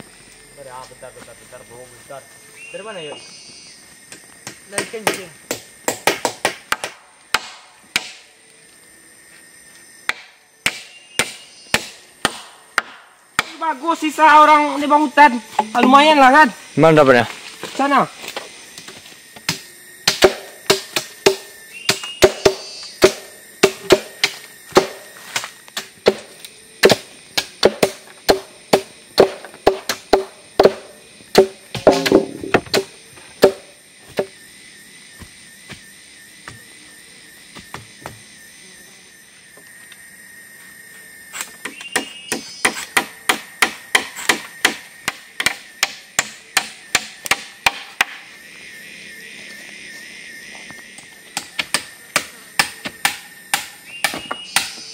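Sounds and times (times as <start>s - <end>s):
hand tool striking wood: 4.4s - 8.3s, 10.1s - 13.6s, 18.8s - 34.3s, 41.4s - 48.2s, 51.3s - 54.9s.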